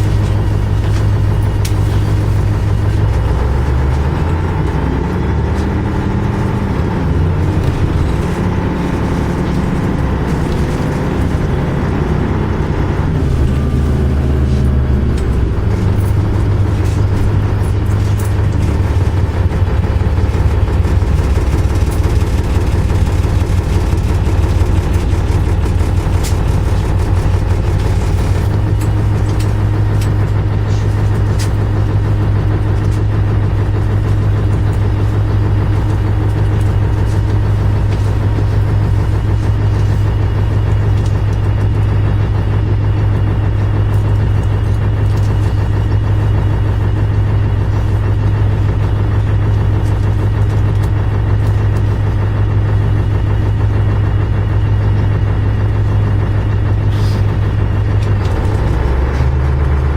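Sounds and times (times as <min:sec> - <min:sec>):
light rattles and clicks: 0:00.0 - 0:42.2
bus engine drone: 0:00.0 - 0:59.9.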